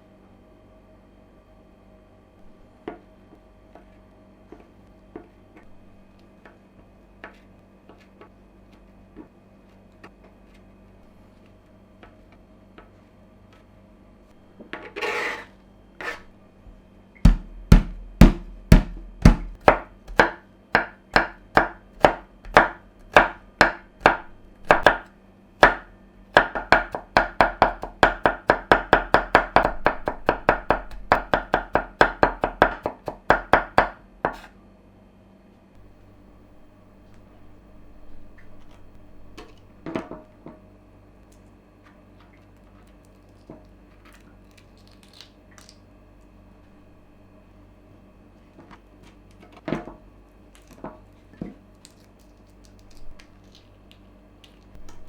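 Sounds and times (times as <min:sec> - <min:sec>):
knife scraping board: 0:14.8 - 0:16.4
knife chopping on cutting board: 0:17.2 - 0:34.5.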